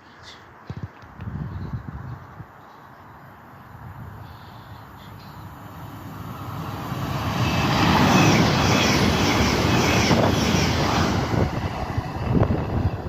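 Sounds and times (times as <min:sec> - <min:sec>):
train rumbling past: 0:03.7 - 0:13.0.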